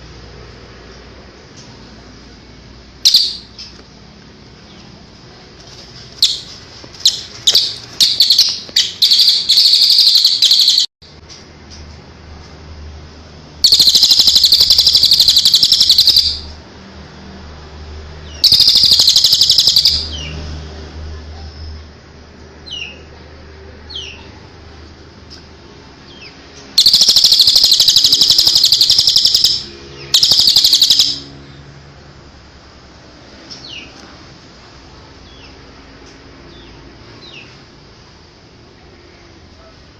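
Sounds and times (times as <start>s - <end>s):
songbird buzzy trill: 2.9s - 3.8s, 6.1s - 10.9s, 13.6s - 16.6s, 18.2s - 20.3s, 26.2s - 31.4s.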